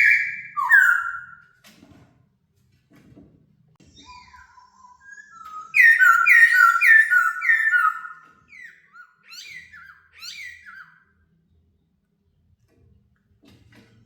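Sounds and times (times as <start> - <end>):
bird whistled song: 0.0 - 1.4, 3.8 - 11.1.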